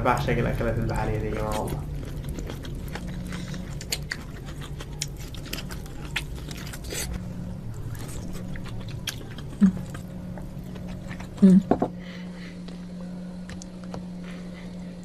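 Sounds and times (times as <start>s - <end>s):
steady low hum: 0.0s - 15.0s
chewing and biting: 0.8s - 11.6s.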